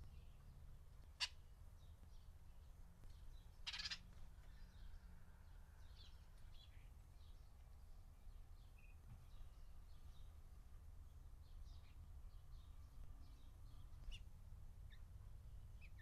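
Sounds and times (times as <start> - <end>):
faint bird chirps: 3.1 - 10.4.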